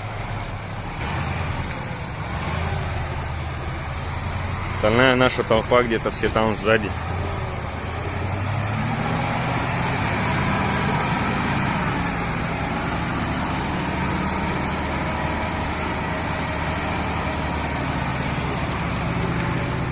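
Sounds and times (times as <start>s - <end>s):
motorcycle engine running: 10.6s - 19.9s.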